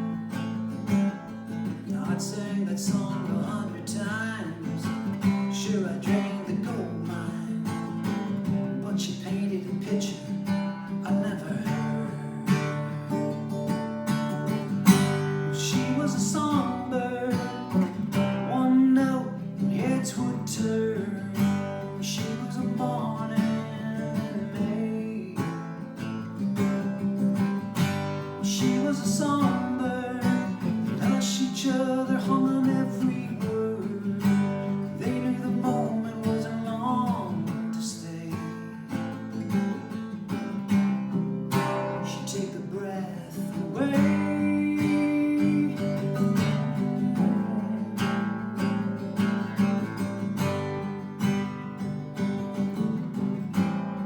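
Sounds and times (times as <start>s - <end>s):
acoustic guitar strumming and picking: 0.0s - 54.0s.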